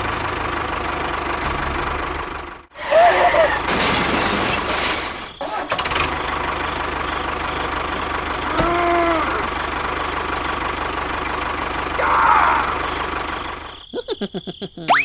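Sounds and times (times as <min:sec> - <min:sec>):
small engine idling: 0:00.0 - 0:03.7, 0:05.4 - 0:13.9.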